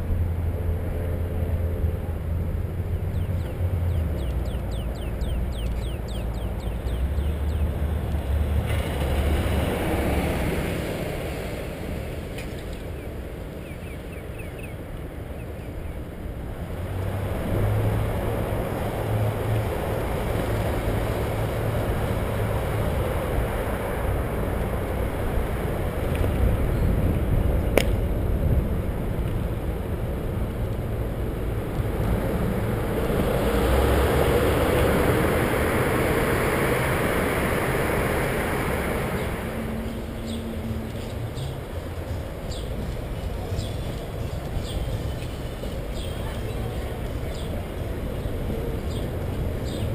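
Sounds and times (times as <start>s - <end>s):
wind rushing over microphone: 0.0s - 49.9s
bicycle rolling on pavement: 16.1s - 49.8s.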